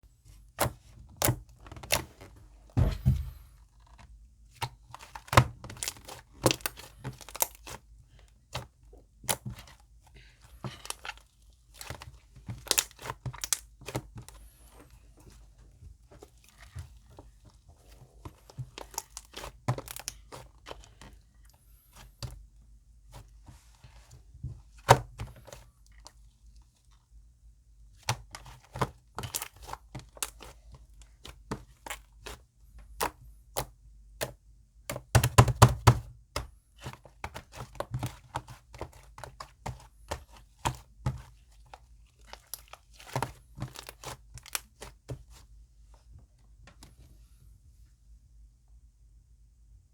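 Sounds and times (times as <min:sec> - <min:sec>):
slime squishing: 0:04.5 - 0:27.0, 0:27.9 - 0:45.5.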